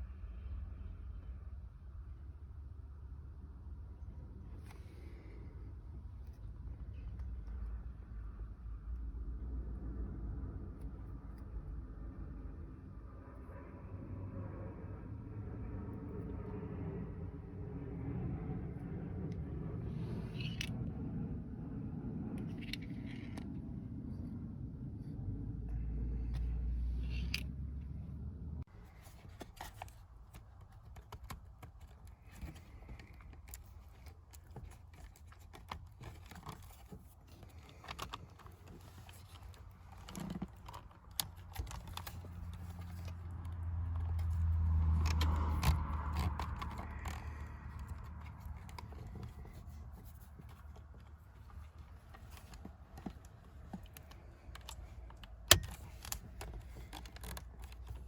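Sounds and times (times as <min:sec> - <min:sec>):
low rumble: 0:00.0 - 0:28.7.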